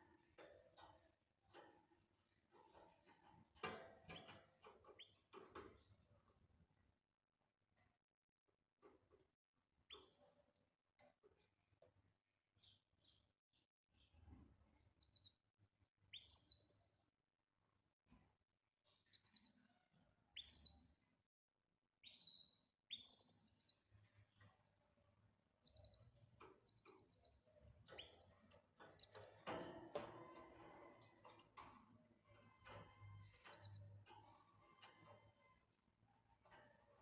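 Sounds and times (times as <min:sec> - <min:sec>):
canary chirping: 0:04.0 - 0:05.9, 0:09.9 - 0:10.4, 0:12.6 - 0:13.2, 0:15.0 - 0:15.4, 0:16.1 - 0:17.0, 0:18.8 - 0:21.0, 0:22.0 - 0:24.4, 0:25.5 - 0:31.7, 0:32.4 - 0:37.0.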